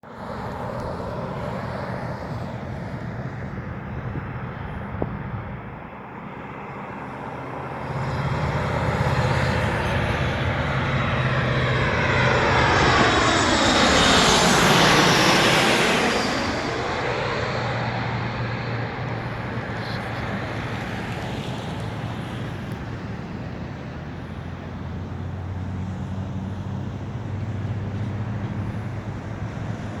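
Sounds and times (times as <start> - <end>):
jet airliner passing by: 0.0 - 30.0
jet engine whine falling in pitch: 0.2 - 30.0.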